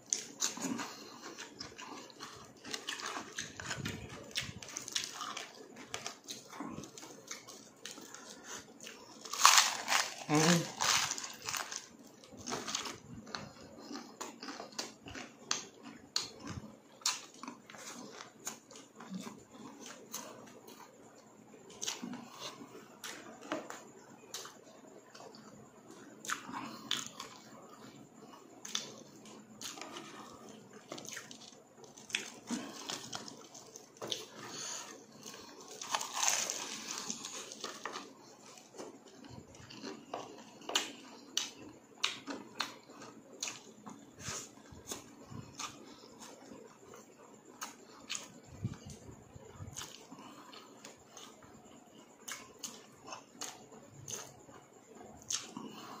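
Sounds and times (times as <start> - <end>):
chewing and crunching food: 0.0 - 56.0.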